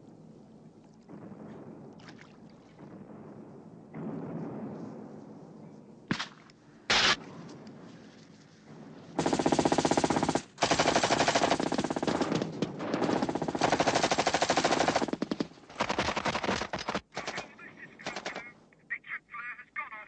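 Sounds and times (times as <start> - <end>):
automatic gunfire: 6.1 - 7.2, 9.2 - 18.5
single gunshots: 6.1 - 7.5.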